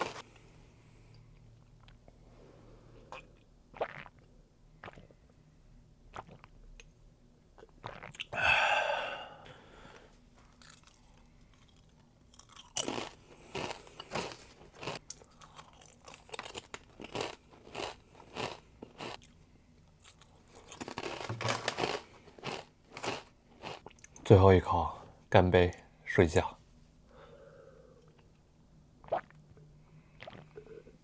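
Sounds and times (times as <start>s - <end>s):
person chewing crunchy food: 0.0s - 0.3s, 10.5s - 19.4s, 20.0s - 24.2s.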